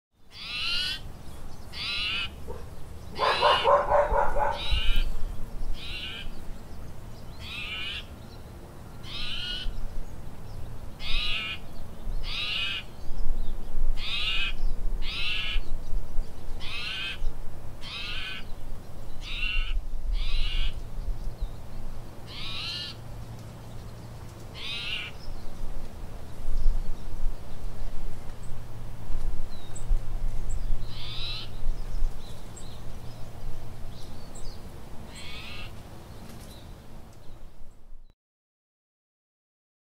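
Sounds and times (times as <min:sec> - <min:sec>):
small bird calling: 0:00.2 - 0:08.4, 0:09.0 - 0:09.8, 0:10.9 - 0:13.0, 0:14.0 - 0:15.8, 0:16.5 - 0:21.6, 0:22.2 - 0:25.6, 0:30.5 - 0:37.4
dog barking: 0:02.5 - 0:04.8.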